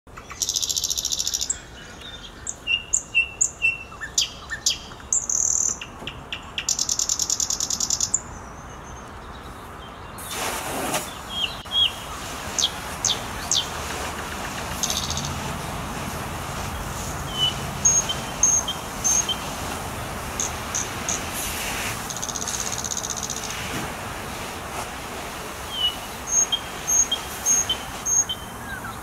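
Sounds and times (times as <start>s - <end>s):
songbirds chirping and trilling: 0.1s - 29.0s
garden hose spraying water: 10.2s - 29.0s.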